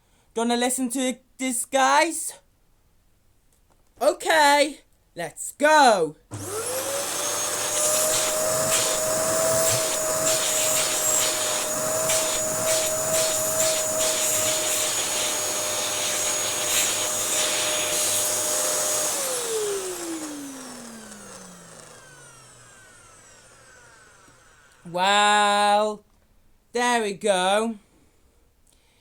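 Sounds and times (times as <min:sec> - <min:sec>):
motor winding down: 0:06.3 - 0:24.9
vacuum cleaner whine and hiss: 0:06.3 - 0:24.9.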